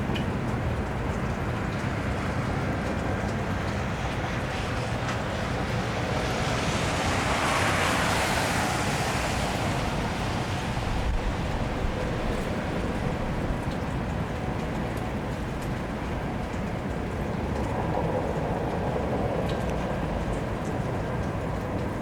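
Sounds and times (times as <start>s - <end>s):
steady rain on street: 0.0s - 22.0s
car tyres hissing on wet road: 1.6s - 14.5s.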